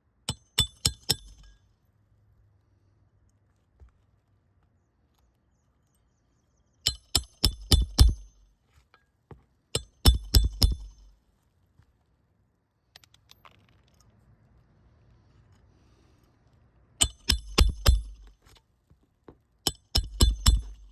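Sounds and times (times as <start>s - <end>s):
hammer striking metal tool: 0.3s - 1.6s, 6.9s - 8.4s, 9.8s - 11.1s, 17.0s - 18.3s, 19.7s - 20.9s.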